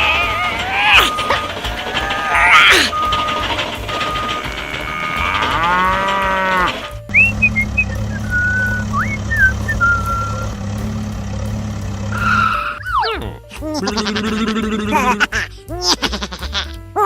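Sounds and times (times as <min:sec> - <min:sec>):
gliding whistled notes: 0:00.0 - 0:04.4, 0:07.1 - 0:10.5
low engine hum: 0:00.0 - 0:15.0
cow-like moo: 0:04.4 - 0:06.9.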